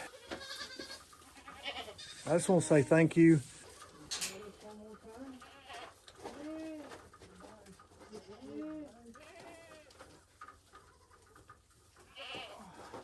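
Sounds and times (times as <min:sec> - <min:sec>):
goats bleating: 0:00.0 - 0:03.6, 0:05.3 - 0:06.8, 0:08.0 - 0:10.0, 0:12.0 - 0:12.8.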